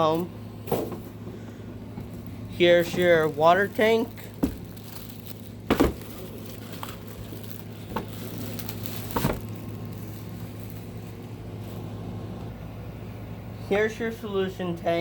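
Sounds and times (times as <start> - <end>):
steady low hum: 0.0 - 15.0
plastic parts knocking: 4.3 - 9.6.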